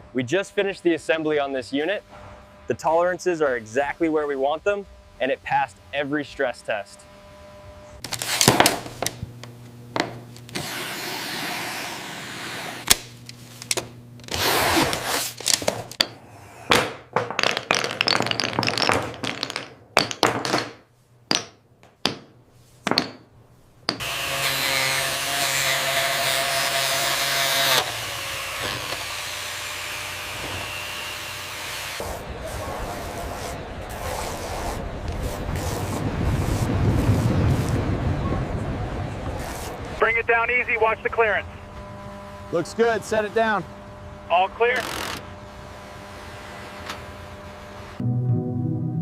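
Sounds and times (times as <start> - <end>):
power tool motor running: 7.0 - 16.0, 23.9 - 32.2, 41.6 - 48.0.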